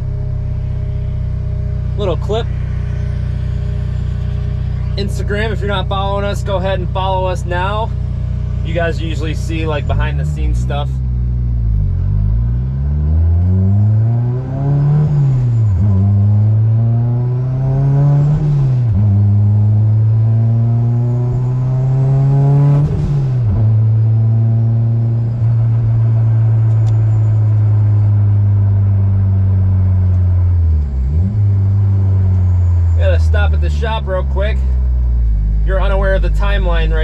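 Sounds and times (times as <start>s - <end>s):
car engine revving through gears: 9.8s - 36.6s.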